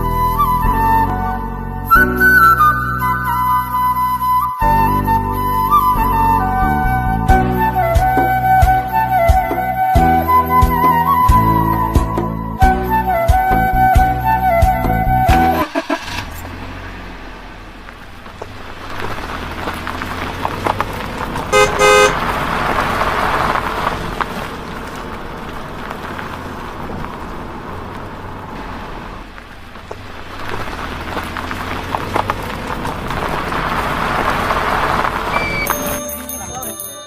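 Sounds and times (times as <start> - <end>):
rushing vehicle noise: 0.0 - 37.0
short horn toot: 21.5 - 22.2, 35.3 - 35.9.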